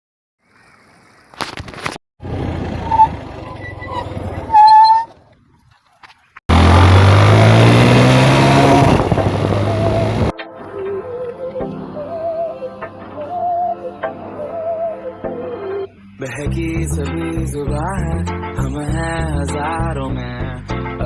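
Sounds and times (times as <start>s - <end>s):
motorcycle engine revving: 2.2s - 5.1s, 6.5s - 10.3s.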